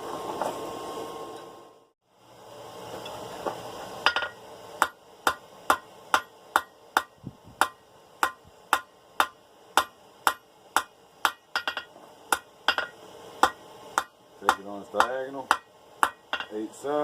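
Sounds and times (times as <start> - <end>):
hammer striking steel on anvil: 4.0 - 16.6.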